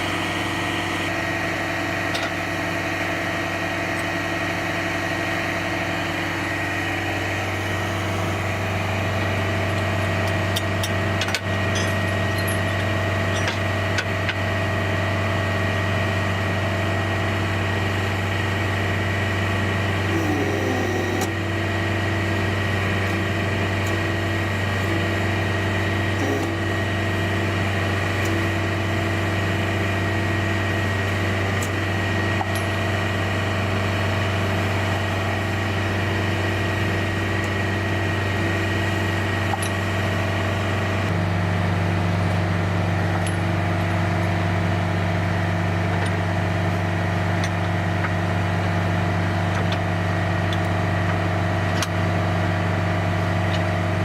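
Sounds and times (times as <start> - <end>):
high-pitched whine: 0.0 - 1.1
diesel truck engine idling: 0.0 - 13.2.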